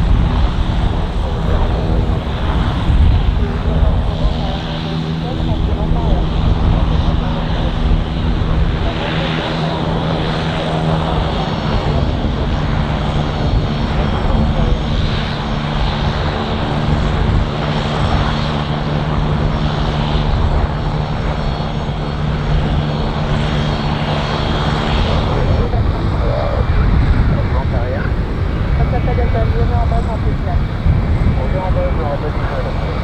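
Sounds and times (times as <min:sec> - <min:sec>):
aircraft engines rumbling: 0:00.0 - 0:33.0.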